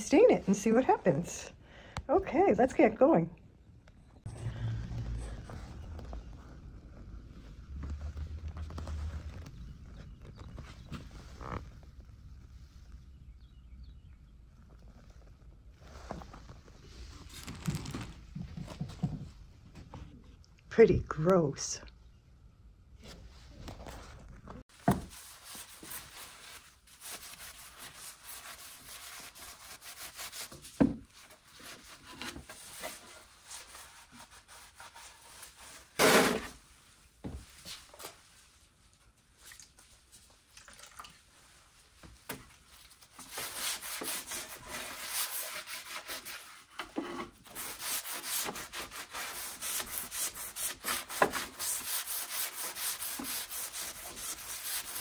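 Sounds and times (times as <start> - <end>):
hand scrubbing wooden table: 47.5 - 55.0.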